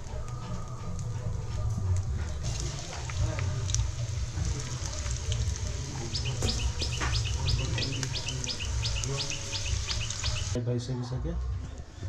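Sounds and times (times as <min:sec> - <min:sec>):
onions frying in oil: 0:00.0 - 0:10.6
steady low rumble: 0:02.0 - 0:10.6
bird chirping: 0:04.8 - 0:10.6.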